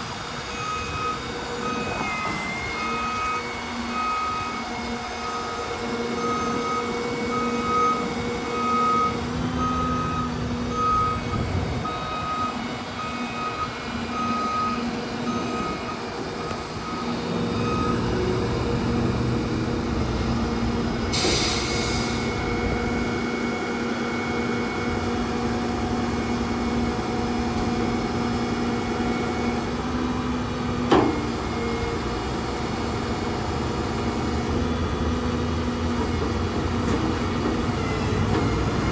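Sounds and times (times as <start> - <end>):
diesel truck engine running: 0.0 - 38.9
backup alarm beeping: 0.5 - 18.2
air hiss: 21.1 - 22.3.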